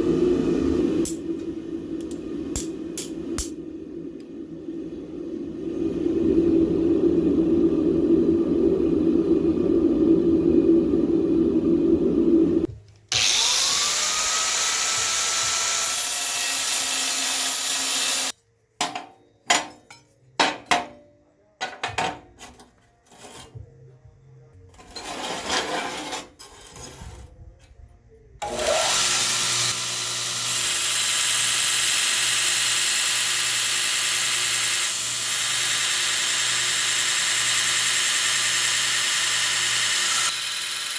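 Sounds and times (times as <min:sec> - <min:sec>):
steady lower hum: 0:00.0 - 0:12.8
power grinder on steel: 0:13.1 - 0:18.3, 0:28.4 - 0:40.9.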